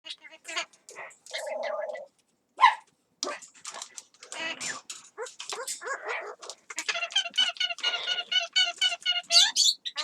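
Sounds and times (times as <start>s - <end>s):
parrot chattering calls: 0.1s - 2.1s
parrot squawk: 0.1s - 2.8s.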